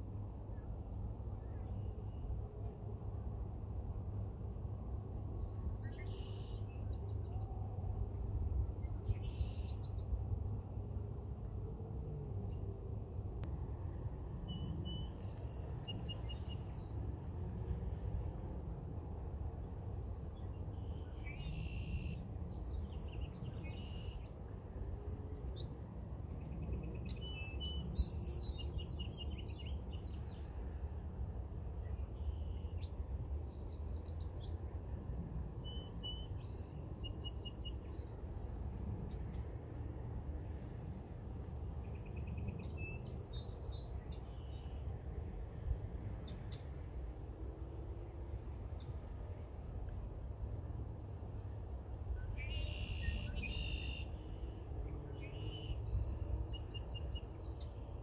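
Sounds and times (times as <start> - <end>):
bird chirps: 35.6 - 38.1, 52.2 - 54.1, 55.2 - 57.6
bird trilled song: 35.6 - 38.1, 55.2 - 57.6.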